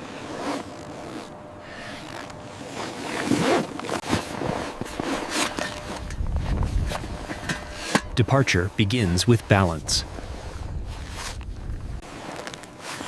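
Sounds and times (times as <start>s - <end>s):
zipper being pulled: 0.0s - 6.1s, 12.0s - 13.0s
rustling fabric: 0.0s - 7.3s, 10.0s - 13.0s.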